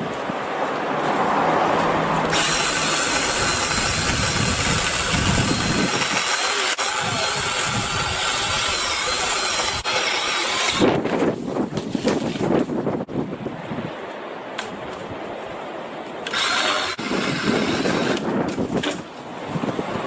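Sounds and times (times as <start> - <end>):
cordless saw cutting a branch: 2.3 - 11.2, 16.2 - 18.9.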